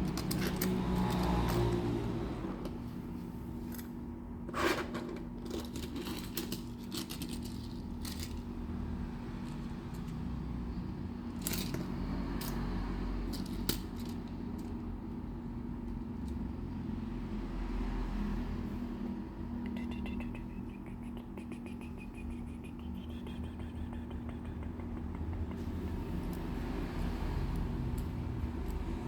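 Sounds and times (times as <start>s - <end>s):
toy trucks clicking and scraping: 0.0s - 1.9s, 4.5s - 8.6s, 11.3s - 14.9s
low hum: 12.0s - 29.0s.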